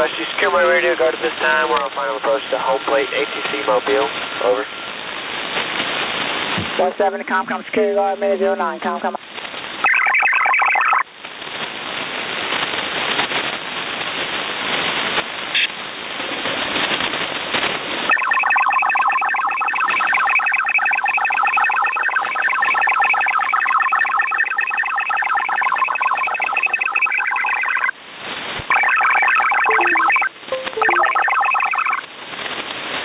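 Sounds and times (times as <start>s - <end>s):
radio receiver hiss: 0.0s - 7.8s, 14.5s - 15.8s
warbling digital data signal: 9.8s - 11.0s, 18.1s - 27.9s, 28.7s - 32.0s.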